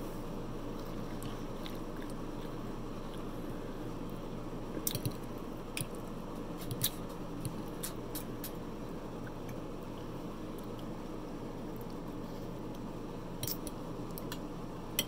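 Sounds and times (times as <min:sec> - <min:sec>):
steady low hum: 0:00.0 - 0:15.0
chewing soft food: 0:00.6 - 0:08.6.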